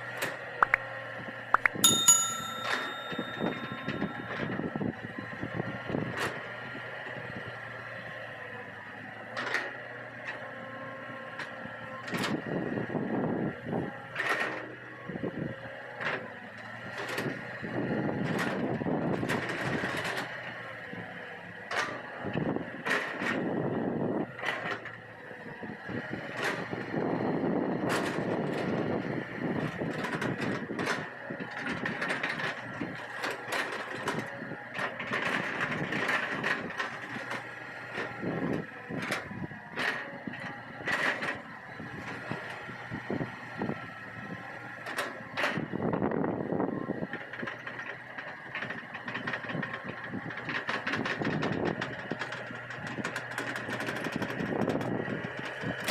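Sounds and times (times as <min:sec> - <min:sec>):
sharp metal clanks and knocks: 0:01.6 - 0:04.7
excavator diesel engine hum: 0:04.0 - 0:45.8.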